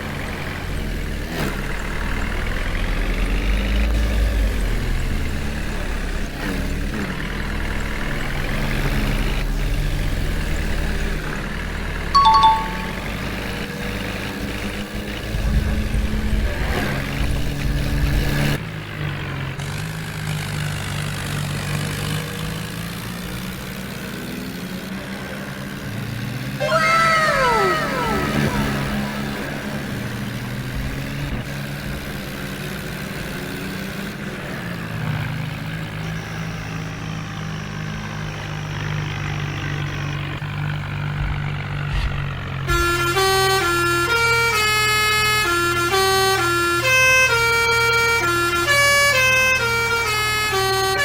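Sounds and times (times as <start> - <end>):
falling tones: 12.2 - 13.3, 26.6 - 29.9
two-note beep: 12.2 - 13.3.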